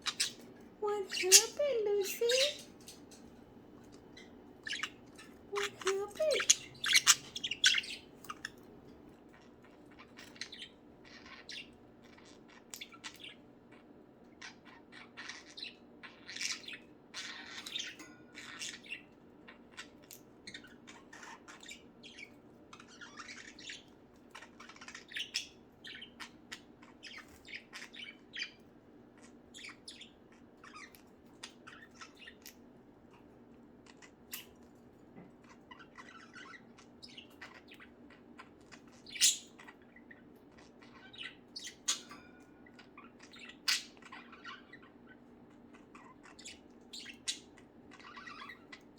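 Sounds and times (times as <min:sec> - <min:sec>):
budgerigars chirping and squawking: 0:00.0 - 0:03.2, 0:03.8 - 0:34.7, 0:35.4 - 0:48.9
faint steady hum: 0:00.0 - 0:48.9.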